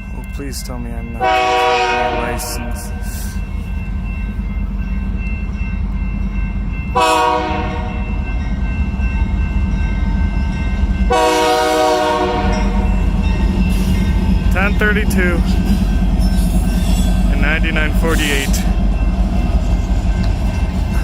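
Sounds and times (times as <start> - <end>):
freight train rumbling past: 0.0 - 21.0
train air horn blasts: 1.2 - 3.2, 7.0 - 8.0, 11.1 - 12.8.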